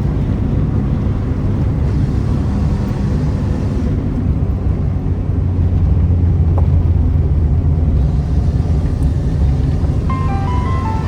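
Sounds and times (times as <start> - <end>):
tune of short clear notes: 10.1 - 11.0.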